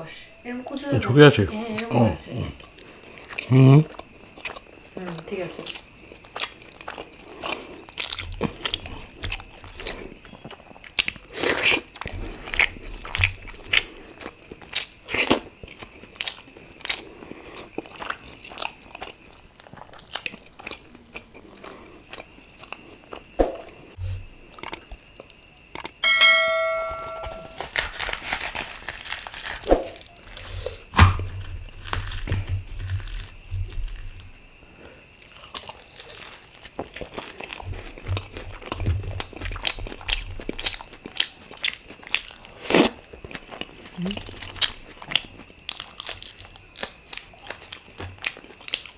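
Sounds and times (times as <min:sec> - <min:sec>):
person biting and chewing food: 0:02.7 - 0:04.8, 0:05.7 - 0:26.0, 0:27.2 - 0:48.9
short ringing tone: 0:26.0 - 0:27.6.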